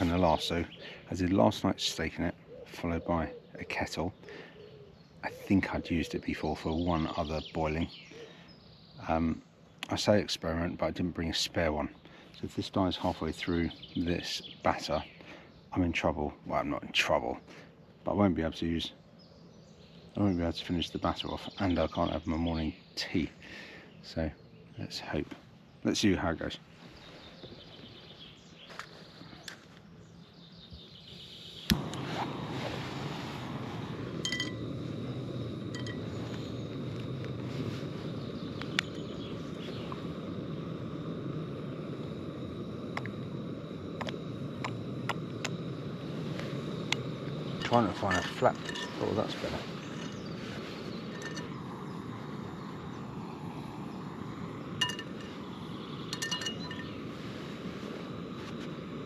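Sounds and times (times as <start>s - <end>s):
gas burner hissing: 0.0s - 10.5s, 19.6s - 24.2s, 25.9s - 59.0s
light metallic clinks: 34.1s - 34.8s, 35.4s - 36.9s, 47.0s - 49.3s, 51.0s - 51.9s, 54.8s - 55.4s, 56.1s - 57.0s
metal cookware clinking: 48.1s - 49.0s, 51.1s - 51.5s, 56.2s - 56.9s.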